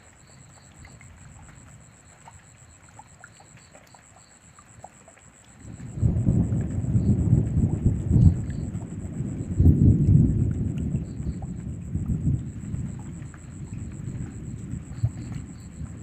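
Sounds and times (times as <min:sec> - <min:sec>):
light rain: 0:00.0 - 0:16.0
water drips: 0:00.0 - 0:16.0
thunder rumbling: 0:05.6 - 0:16.0.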